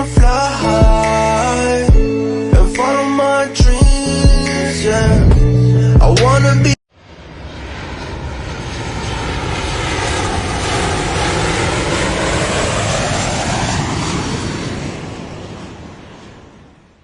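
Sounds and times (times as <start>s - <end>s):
airliner passing overhead: 6.9s - 17.0s.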